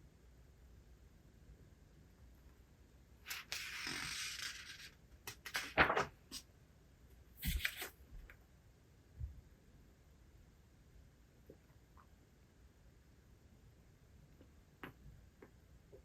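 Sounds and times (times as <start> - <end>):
paper rustling: 3.3 - 6.4, 7.4 - 8.0.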